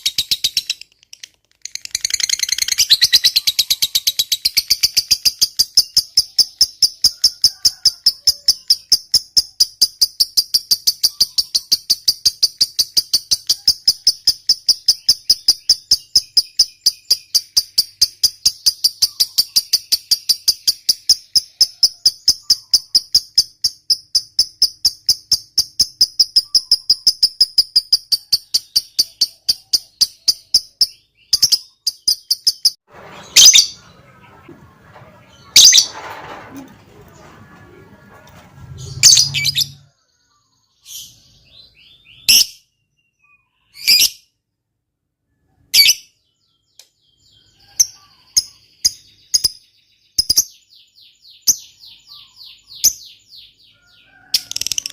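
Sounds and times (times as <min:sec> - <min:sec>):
lovebird shrill chatter: 0:33.3 - 0:33.8, 0:35.5 - 0:36.0.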